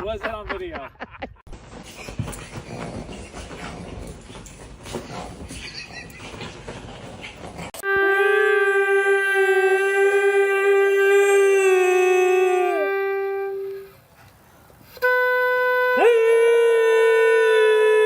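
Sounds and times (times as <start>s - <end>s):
dog howling: 8.4s - 13.0s
second voice howling: 8.4s - 13.8s.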